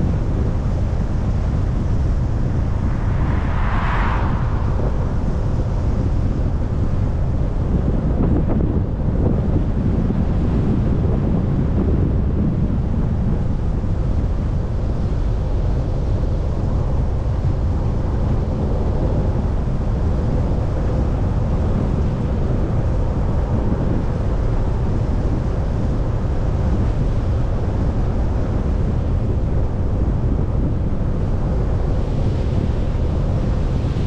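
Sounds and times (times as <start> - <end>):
vehicle tyre and engine rumble: 0.0 - 34.0.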